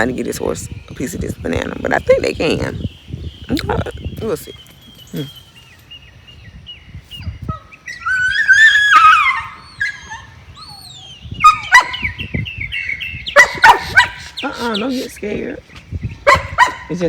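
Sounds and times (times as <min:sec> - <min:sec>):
birds chirping faintly: 0:00.0 - 0:17.0
dog yelping and barking: 0:07.2 - 0:15.0, 0:16.1 - 0:17.0
dog whining: 0:07.5 - 0:12.2, 0:13.4 - 0:14.9.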